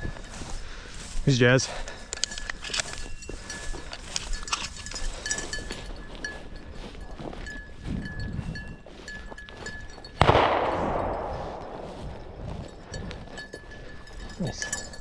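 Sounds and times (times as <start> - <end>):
dog bell jingling: 0.0 - 15.0
shotgun shot with echo: 10.2 - 12.4.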